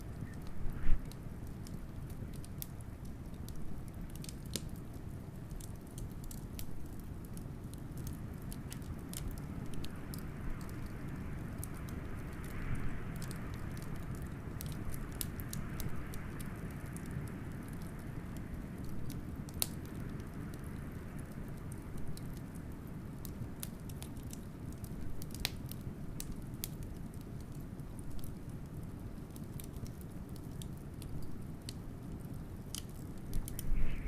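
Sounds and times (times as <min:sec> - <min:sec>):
wood fire crackling and popping: 0:00.0 - 0:34.0
blizzard wind rumbling: 0:33.3 - 0:34.0.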